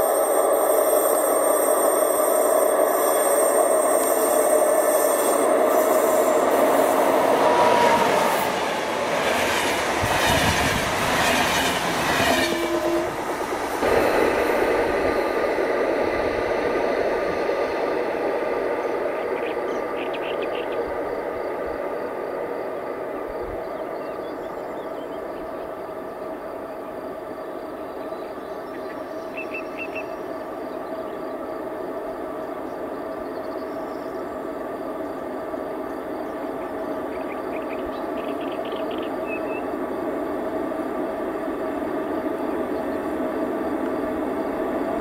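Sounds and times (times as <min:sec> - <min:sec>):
train motor whine: 0:00.0 - 0:19.2
train rumble: 0:00.0 - 0:45.0.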